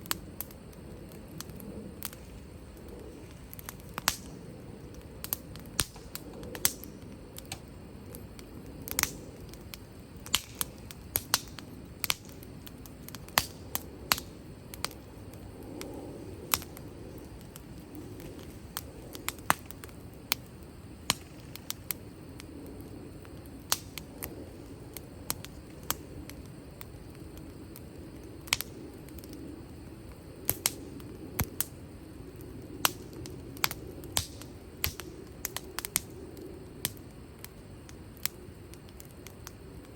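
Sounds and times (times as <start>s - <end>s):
firewood popping and snapping: 0.0s - 39.9s
low flame sound: 0.0s - 39.9s.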